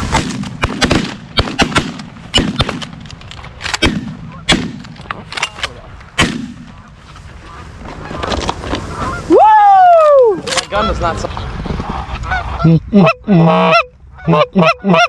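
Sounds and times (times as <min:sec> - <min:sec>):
shotguns firing: 0:00.0 - 0:06.8.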